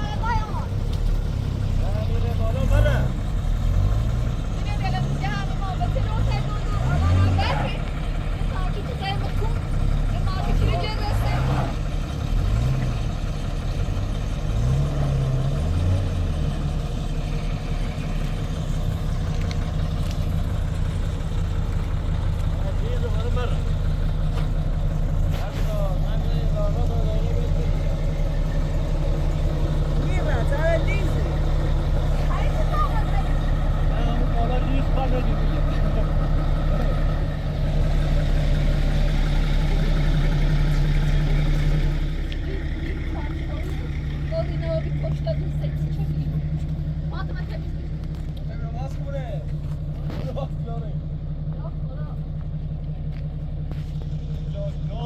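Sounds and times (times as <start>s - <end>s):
vehicle engine humming: 0.0s - 55.0s.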